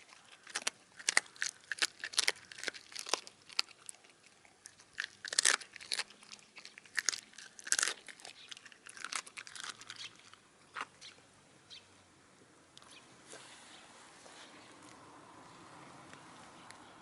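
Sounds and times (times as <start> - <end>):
dog crunching and chewing bone: 0.0 - 11.2.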